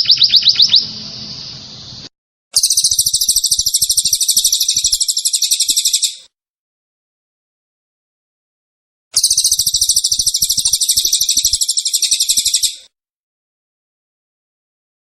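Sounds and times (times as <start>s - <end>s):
songbird high trill: 0.0s - 6.3s, 9.2s - 12.9s.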